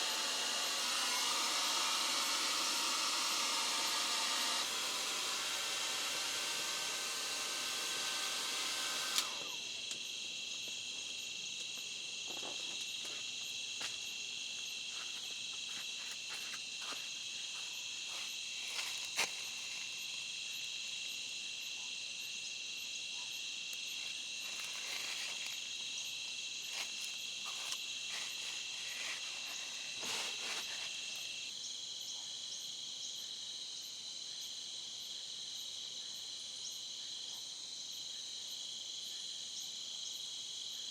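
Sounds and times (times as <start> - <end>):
insects chirring: 9.2 - 40.9
loud hiss: 26.6 - 31.5.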